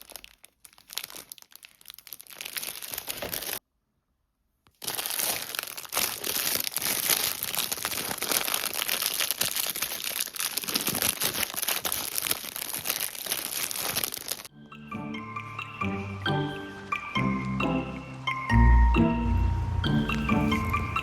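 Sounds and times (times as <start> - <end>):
packaging crinkling: 0.0 - 3.6, 4.7 - 14.5.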